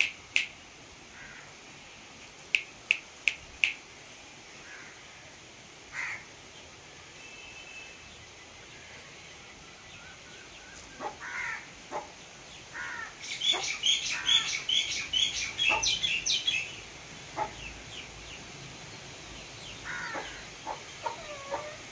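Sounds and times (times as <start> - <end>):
birds chirping: 0.0 - 5.4, 6.0 - 21.9.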